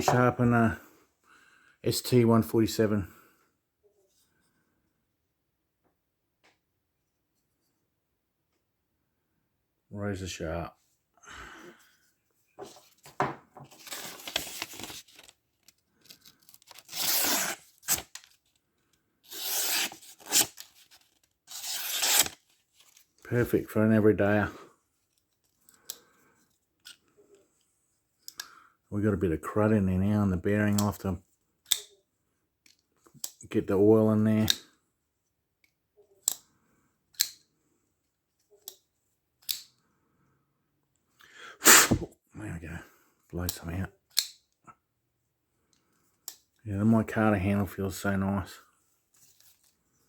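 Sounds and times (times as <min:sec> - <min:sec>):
knife slicing through paper: 0:16.6 - 0:18.2, 0:19.3 - 0:22.4.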